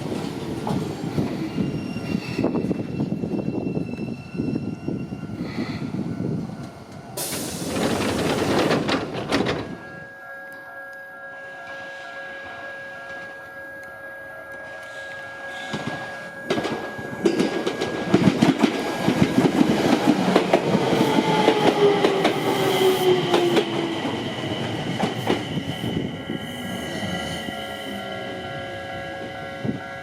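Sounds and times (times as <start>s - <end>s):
electric train wheels clicking: 6.6s - 11.0s, 12.8s - 27.1s
steady warning tones: 8.9s - 30.0s.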